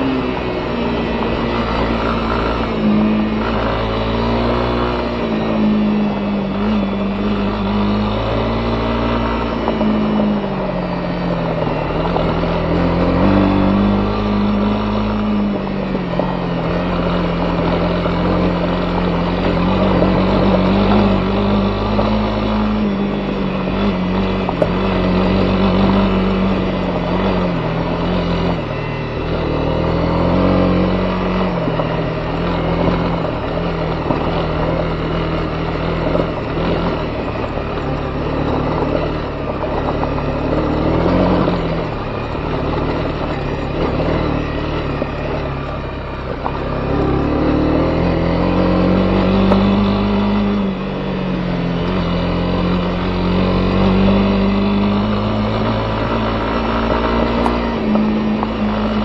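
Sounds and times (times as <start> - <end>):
motorcycle engine revving: 0.0 - 59.0
road and wind noise: 0.0 - 59.0.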